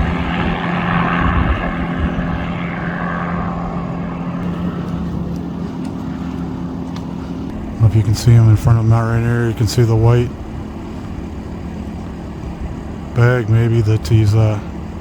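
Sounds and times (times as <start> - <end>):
helicopter rotor drone: 0.0 - 15.0.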